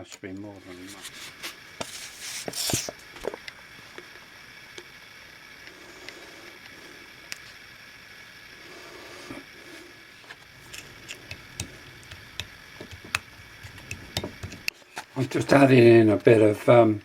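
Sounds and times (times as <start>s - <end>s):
scraping at a work bench: 0.7s - 3.0s.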